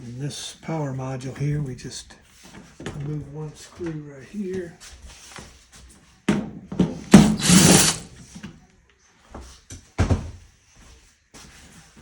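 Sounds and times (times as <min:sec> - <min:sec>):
power drill running: 0:07.2 - 0:08.1.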